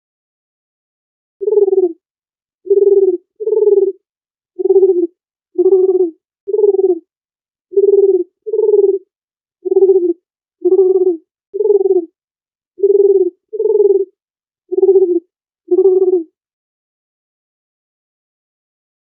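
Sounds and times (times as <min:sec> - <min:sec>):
dove cooing: 0:01.4 - 0:02.0, 0:02.7 - 0:04.0, 0:04.6 - 0:07.0, 0:07.7 - 0:12.2, 0:12.8 - 0:16.3.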